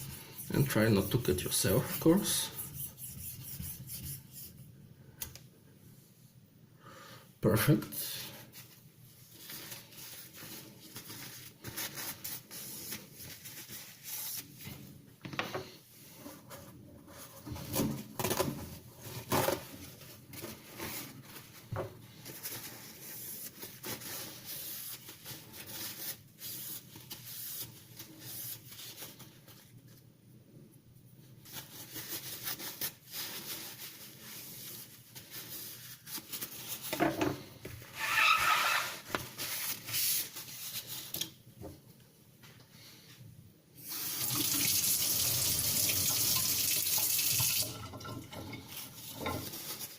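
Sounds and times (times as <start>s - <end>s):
knife rubbing and scraping: 0.0s - 4.6s, 37.9s - 41.0s.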